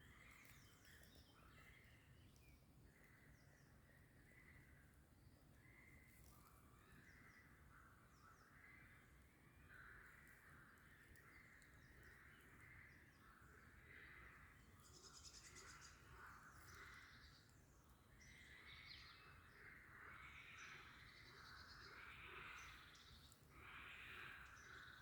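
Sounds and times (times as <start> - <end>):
birds calling and singing: 0.0 - 4.7, 9.6 - 25.0.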